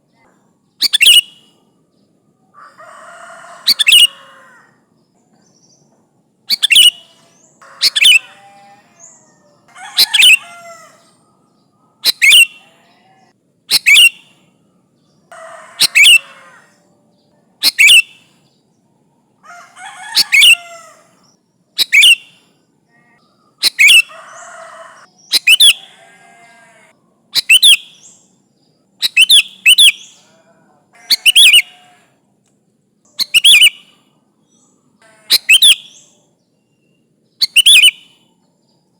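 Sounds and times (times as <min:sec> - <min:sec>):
bird chattering warble: 0:00.8 - 0:01.4, 0:03.7 - 0:04.3, 0:06.5 - 0:11.1, 0:12.0 - 0:12.9, 0:13.7 - 0:14.3, 0:15.3 - 0:16.7, 0:17.6 - 0:18.3, 0:19.8 - 0:21.0, 0:21.8 - 0:22.4, 0:23.0 - 0:26.5, 0:27.4 - 0:28.1, 0:29.0 - 0:30.2, 0:31.0 - 0:31.8, 0:33.1 - 0:33.9, 0:35.0 - 0:36.1, 0:37.4 - 0:38.1.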